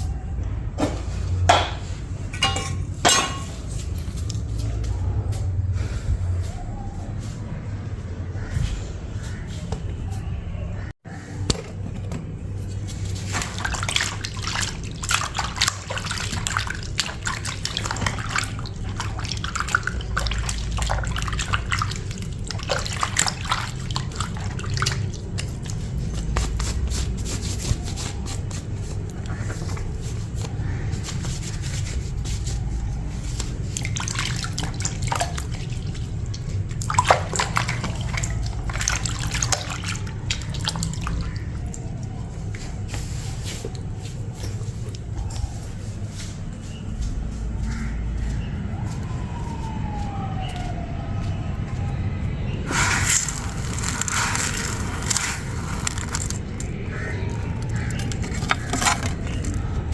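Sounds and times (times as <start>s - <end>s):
water splashing and dripping: 12.6s - 59.9s.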